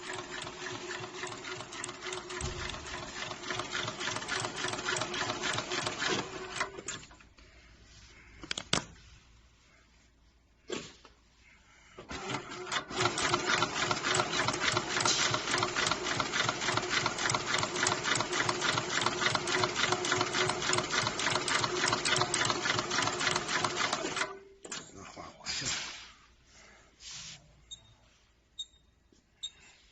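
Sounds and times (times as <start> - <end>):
sewing machine stitching leather: 0.0 - 7.2, 12.1 - 24.8.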